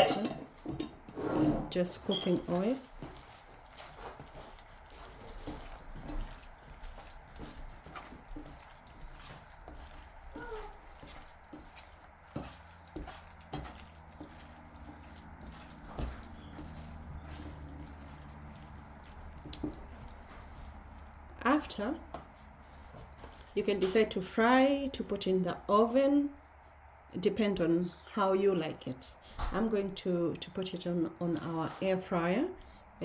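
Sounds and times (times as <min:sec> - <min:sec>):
oil dripping with wet clicks: 0:03.0 - 0:21.3.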